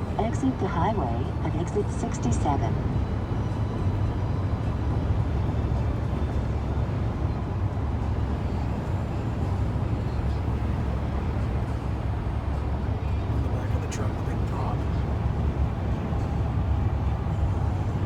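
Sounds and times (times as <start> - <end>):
car engine: 10.0 - 18.0.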